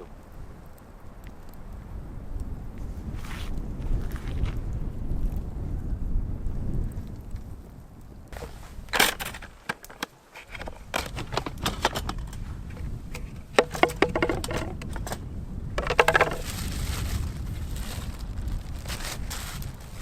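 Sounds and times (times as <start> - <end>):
clicks and knocks of handling: 8.3 - 15.2, 15.8 - 16.5
short rattling: 8.4 - 15.2, 15.8 - 16.6.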